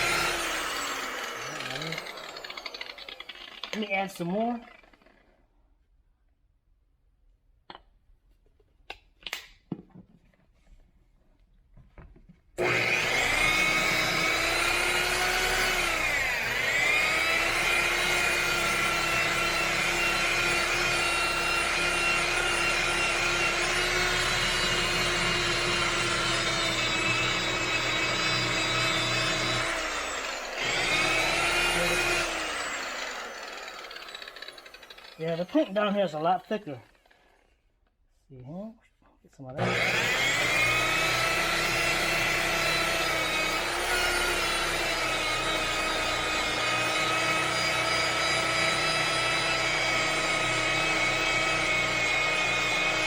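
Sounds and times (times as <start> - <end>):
electric orbital buffer whining: 0.0 - 4.4, 12.6 - 36.6, 39.6 - 53.0.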